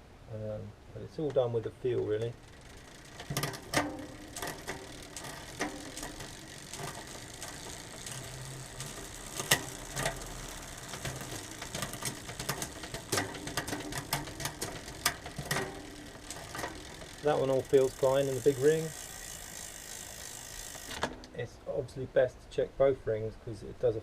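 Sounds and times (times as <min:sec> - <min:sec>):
gear shifting clicks: 0:01.3 - 0:21.4
bike chain running over cassette: 0:02.0 - 0:21.2.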